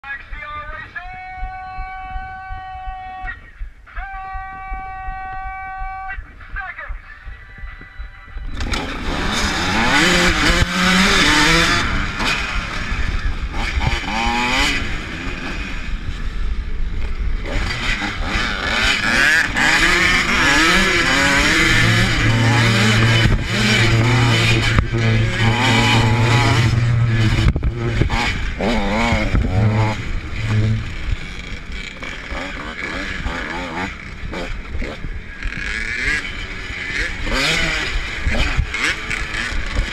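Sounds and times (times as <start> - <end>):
motocross bikes revving: 8.4 - 39.9.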